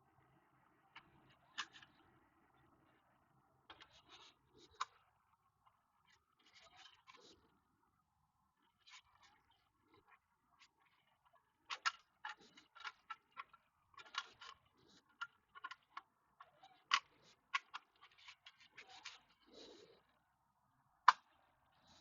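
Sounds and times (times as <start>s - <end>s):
small clicks and taps of tools: 11.7s - 16.1s.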